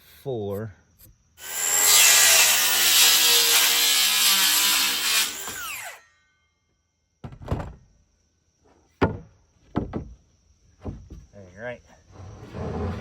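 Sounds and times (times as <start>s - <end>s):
circular saw cutting wood: 1.4s - 6.0s
knock: 7.2s - 7.8s, 9.0s - 10.2s, 10.8s - 11.3s.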